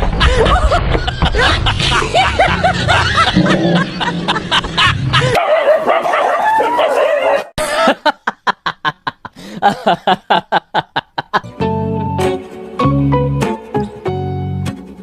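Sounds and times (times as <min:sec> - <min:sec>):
dog yipping: 0:05.4 - 0:07.5.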